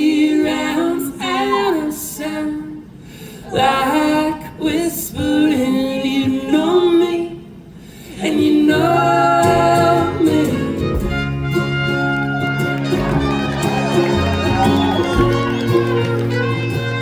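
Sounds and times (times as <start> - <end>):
voices singing in harmony: 0.0 - 11.0, 13.0 - 17.0
live band music: 10.1 - 17.0.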